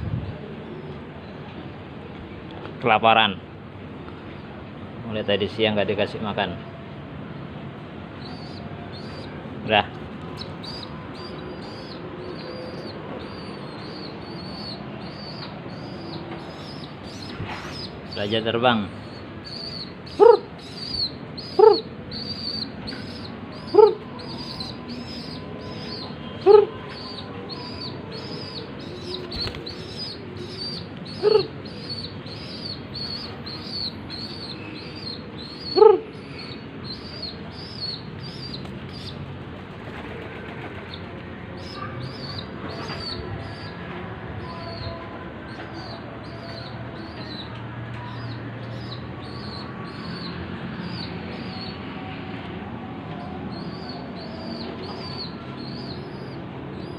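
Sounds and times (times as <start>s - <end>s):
pigeon calls: 19.1s - 39.2s
pigeon flapping wings: 29.2s - 29.7s, 39.6s - 41.0s.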